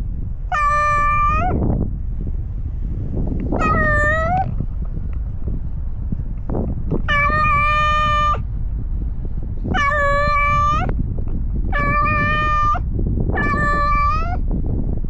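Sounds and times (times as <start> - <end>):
low rumble: 0.0 - 15.0
cat meowing: 0.5 - 1.6, 3.6 - 4.5, 7.0 - 8.4, 9.7 - 10.9, 11.7 - 12.8, 13.4 - 14.4.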